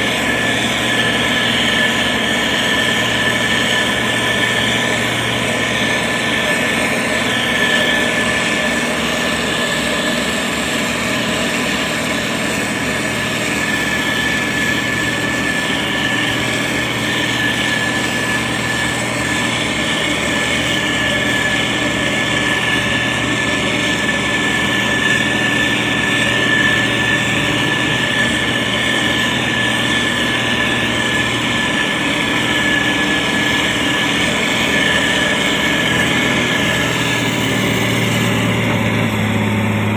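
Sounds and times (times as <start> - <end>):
diesel engine running: 0.0 - 39.9
high-pitched whine: 0.0 - 39.9.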